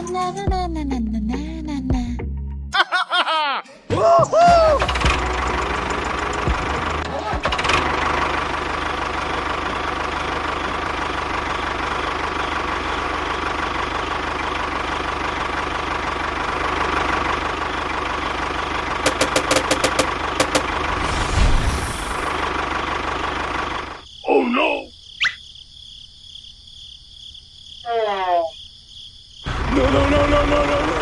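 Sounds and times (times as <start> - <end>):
sharp clicks: 19.0 - 20.7.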